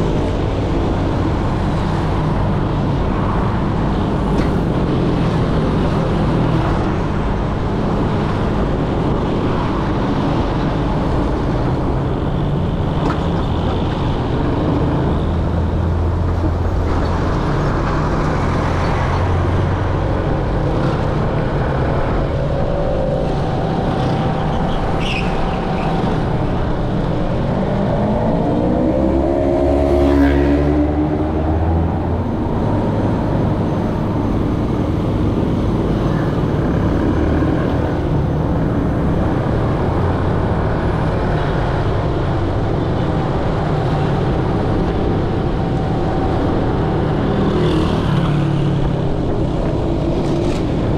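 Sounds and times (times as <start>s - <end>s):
road noise: 0.0s - 50.9s
rumble of motorbike engines: 0.0s - 50.9s
engine revving up: 27.6s - 33.6s.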